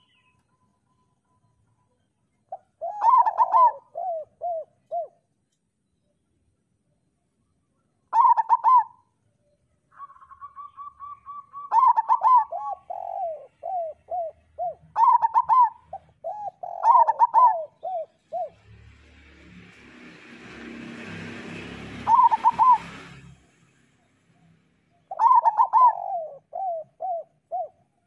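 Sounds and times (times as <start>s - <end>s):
doves cooing in rolling phrases: 2.5s - 5.2s, 8.1s - 9.0s, 9.9s - 18.8s, 21.0s - 23.0s, 25.1s - 28.0s
low single dove coos: 2.6s - 5.2s, 10.0s - 18.6s, 22.1s - 22.9s, 25.1s - 27.9s.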